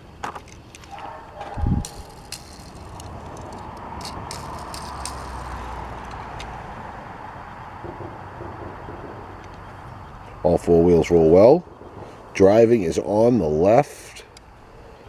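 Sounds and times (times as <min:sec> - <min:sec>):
toy car wheels rolling: 0:00.0 - 0:07.3
small clicks: 0:00.2 - 0:06.6.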